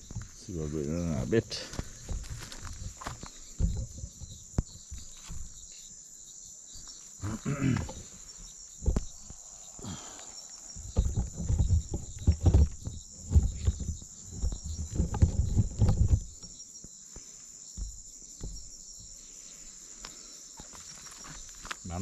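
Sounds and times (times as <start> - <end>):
crickets chirping: 0.0 - 22.0
heavy low bumps and rumbles: 10.7 - 16.4.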